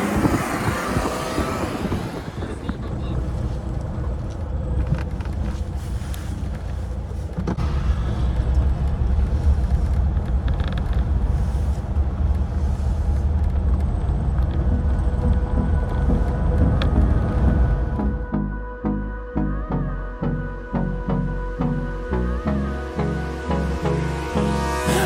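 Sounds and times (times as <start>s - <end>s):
car engine and road rumble: 0.0s - 18.8s.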